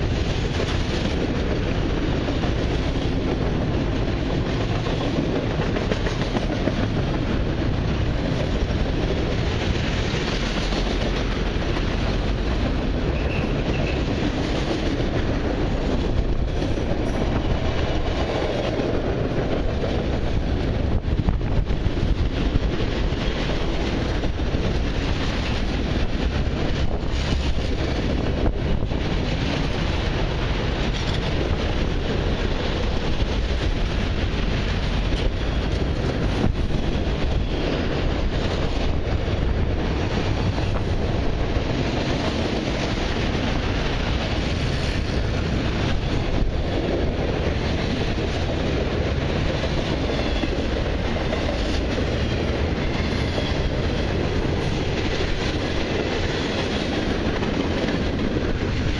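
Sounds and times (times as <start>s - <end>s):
freight train wheels rumbling: 0.0s - 58.9s.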